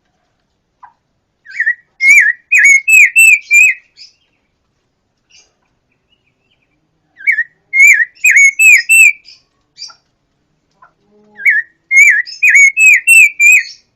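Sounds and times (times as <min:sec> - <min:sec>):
songbird whistling: 0:01.4 - 0:04.2, 0:07.2 - 0:09.4, 0:11.4 - 0:13.9.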